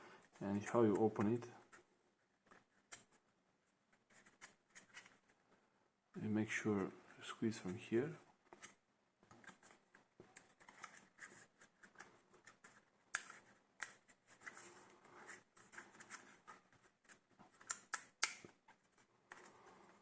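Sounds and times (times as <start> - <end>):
plastic snapping: 17.6 - 18.6.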